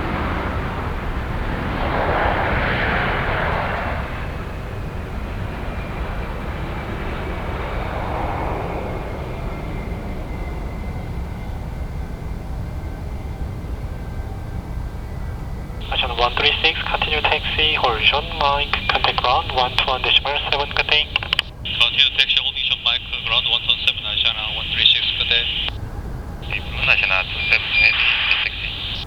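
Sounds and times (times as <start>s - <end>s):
jet engine rumble: 0.0s - 29.0s
faint high whine: 15.8s - 29.0s.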